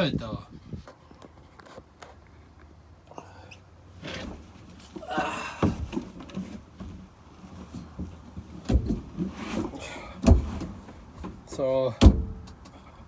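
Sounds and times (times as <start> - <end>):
rustling and handling noise: 5.7 - 11.6
sharp thump: 12.0 - 12.6.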